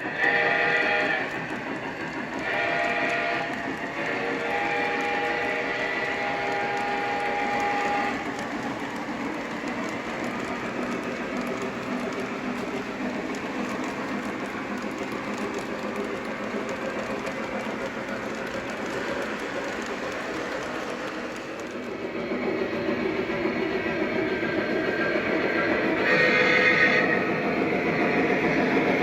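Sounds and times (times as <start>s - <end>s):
model train steam whistle: 0.0s - 9.0s, 24.5s - 27.4s
model train motor whir: 0.0s - 21.9s.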